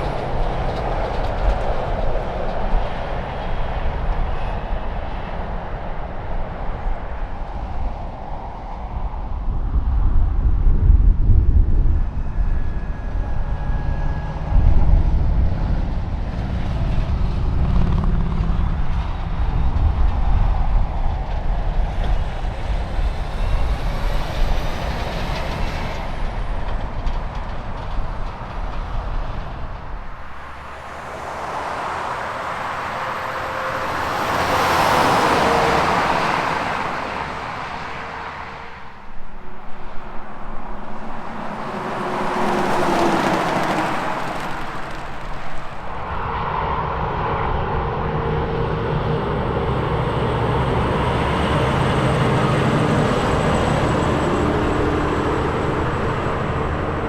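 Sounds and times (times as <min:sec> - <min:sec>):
passing vehicle tyre and wind noise: 0:00.0 - 0:57.0
heavy diesel truck rumble: 0:15.1 - 0:57.0.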